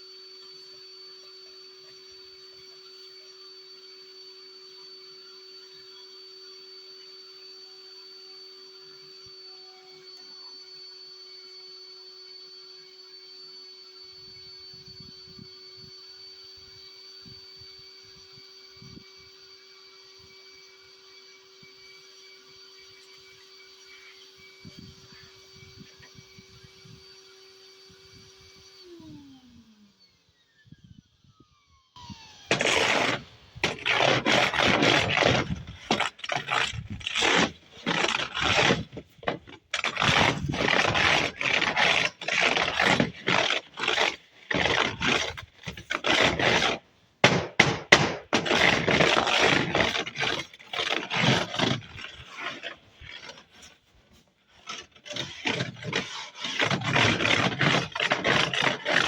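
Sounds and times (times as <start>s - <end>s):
vacuum cleaner motor winding down: 27.9s - 46.7s
rough scraping bursts: 32.5s - 59.0s.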